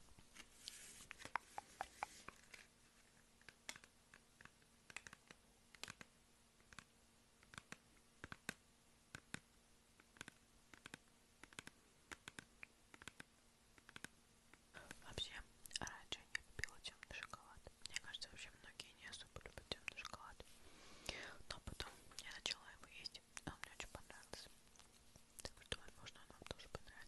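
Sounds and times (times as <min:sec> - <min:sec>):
mouth clicks and smacks: 0:01.1 - 0:02.4, 0:15.6 - 0:18.1, 0:19.2 - 0:20.2.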